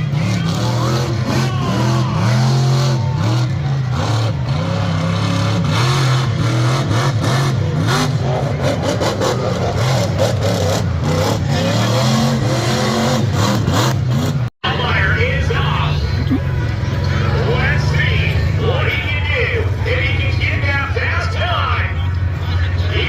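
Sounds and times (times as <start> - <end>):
truck engine revving hard: 0.0 - 15.0.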